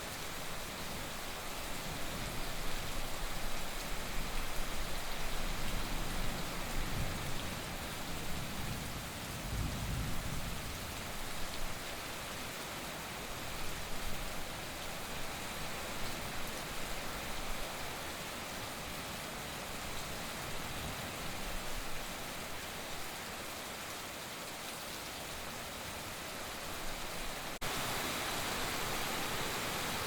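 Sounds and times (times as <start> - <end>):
heavy rain hissing: 25.2 - 30.0.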